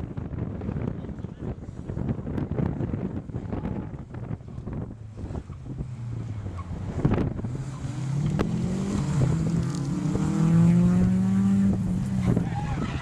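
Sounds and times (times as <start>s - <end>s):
rally car engine accelerating: 4.2s - 13.0s.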